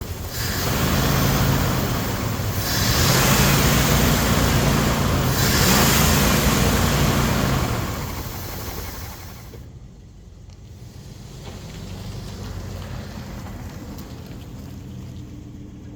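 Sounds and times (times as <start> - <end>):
hissing rush: 0.0 - 9.7
pickup engine running: 0.0 - 15.9.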